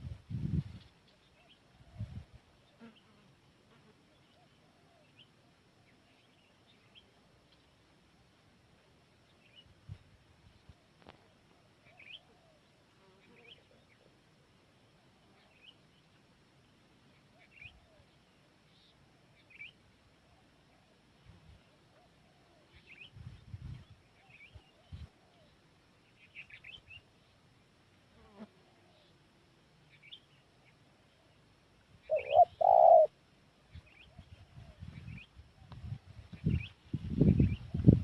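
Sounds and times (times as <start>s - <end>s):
bird chirps: 32.0s - 33.1s
dove cooing: 32.0s - 33.2s.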